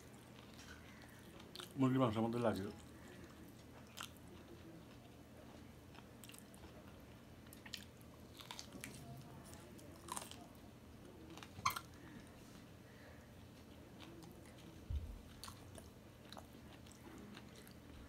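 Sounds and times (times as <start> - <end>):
person chewing food: 2.7 - 12.4, 13.5 - 18.0.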